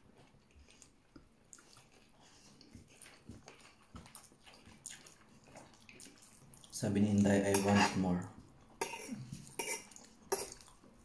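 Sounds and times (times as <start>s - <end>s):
chewing food: 0.0s - 11.0s.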